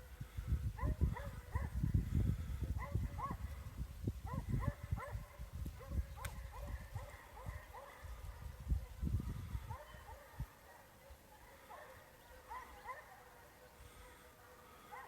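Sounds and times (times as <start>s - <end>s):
hounds baying: 0.8s - 1.8s, 2.8s - 3.6s, 4.3s - 8.5s, 9.6s - 15.0s.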